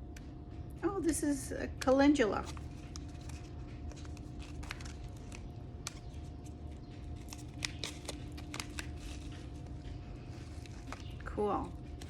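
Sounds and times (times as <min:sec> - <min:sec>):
package clicks and rustles: 0:02.4 - 0:12.0.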